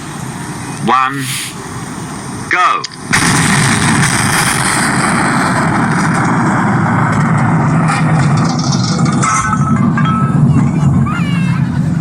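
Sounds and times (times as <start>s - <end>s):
firework rushing hiss: 0.0s - 2.4s, 3.1s - 9.2s.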